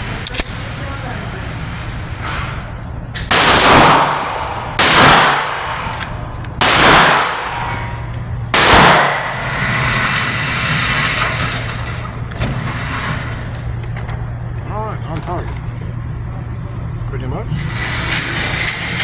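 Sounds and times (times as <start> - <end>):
pistol shots: 3.2 - 7.9, 8.5 - 10.0.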